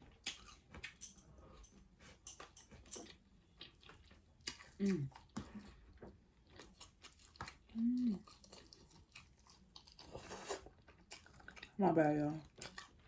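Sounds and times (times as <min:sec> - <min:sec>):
chewing with wet smacking: 0:00.0 - 0:13.0
person humming: 0:04.8 - 0:05.1, 0:07.8 - 0:08.2.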